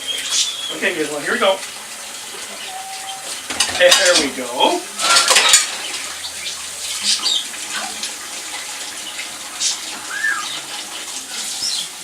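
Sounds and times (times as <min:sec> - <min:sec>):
tap water running into sink: 0:00.0 - 0:12.0
dishes clinking: 0:02.9 - 0:04.3.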